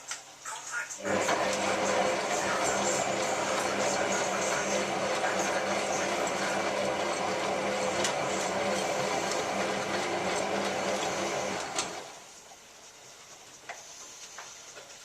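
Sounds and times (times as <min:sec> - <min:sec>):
washing machine motor humming: 0:01.0 - 0:12.3.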